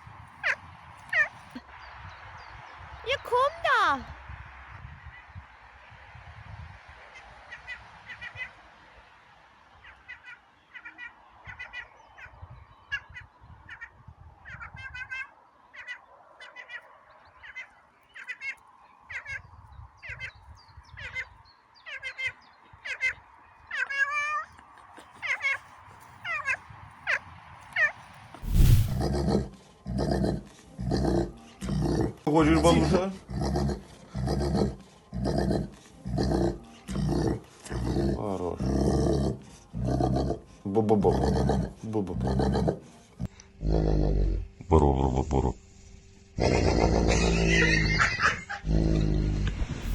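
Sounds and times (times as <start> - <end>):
loud low sound: 28.4 - 29.2.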